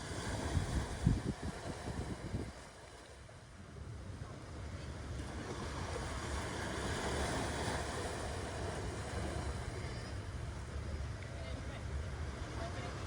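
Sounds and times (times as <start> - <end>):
continuous low rumble: 0.0 - 13.0
ocean waves washing ashore: 0.0 - 13.0.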